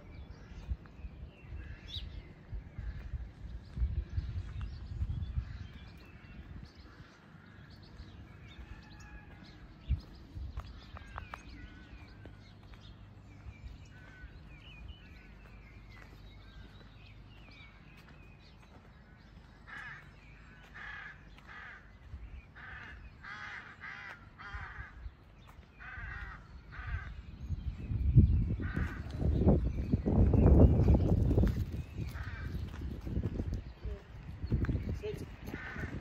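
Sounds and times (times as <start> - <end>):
small birds chirping: 0.0 - 36.0
harsh cawing calls: 19.1 - 25.0, 25.8 - 27.2, 35.5 - 36.0.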